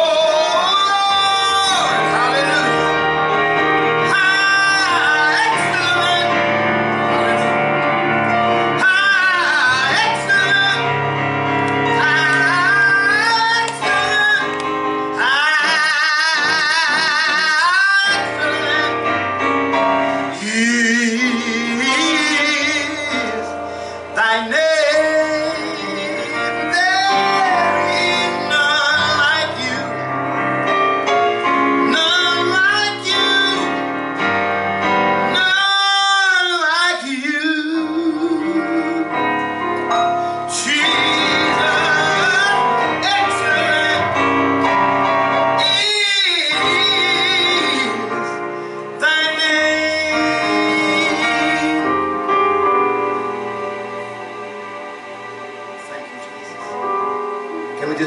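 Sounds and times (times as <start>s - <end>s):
solo voice singing gospel: 0.0s - 7.5s, 8.3s - 19.2s, 20.2s - 30.1s, 31.4s - 33.9s, 35.3s - 44.7s, 45.4s - 52.4s
sustained instrumental backing: 0.0s - 58.0s.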